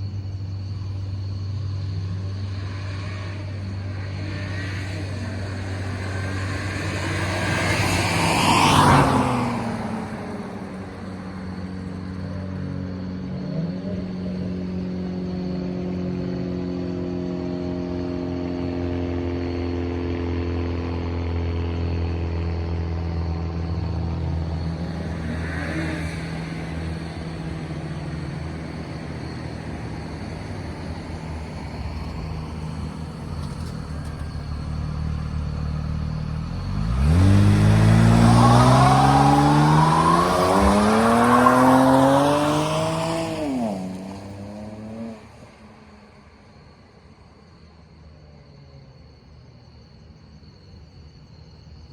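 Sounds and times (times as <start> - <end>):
car engine revving: 20.3 - 45.6.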